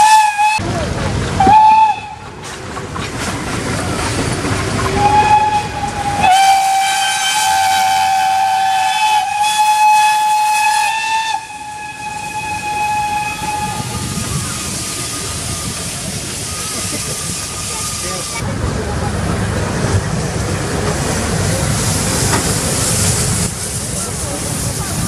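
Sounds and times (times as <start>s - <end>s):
steam locomotive whistle: 0.0s - 0.6s, 1.4s - 2.3s, 4.9s - 14.4s
steam hissing: 3.6s - 18.7s, 19.5s - 25.0s.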